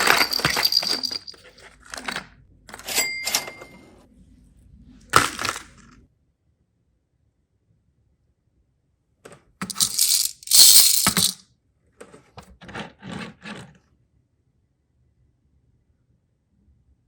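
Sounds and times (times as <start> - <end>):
plastic toy pieces rattling: 0.0 - 2.2, 9.6 - 11.4.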